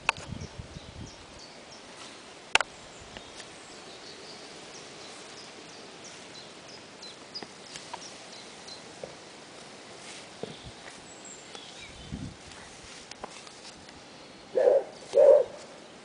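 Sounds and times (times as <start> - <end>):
small birds chirping: 0.0 - 16.0
faint ticks: 6.7 - 9.2.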